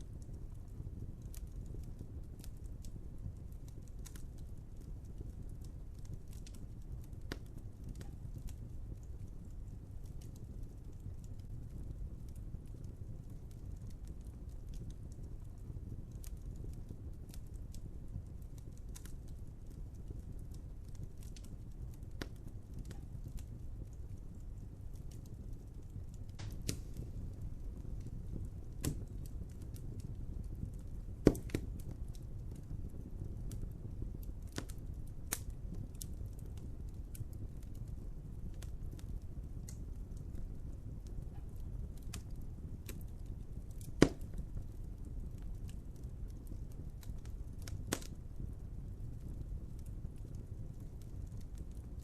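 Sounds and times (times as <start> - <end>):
wood fire crackling: 0.0 - 52.0
sharp fire pops: 10.0 - 52.0
loud sharp fire pop: 26.4 - 27.0, 31.2 - 31.6, 44.0 - 44.3.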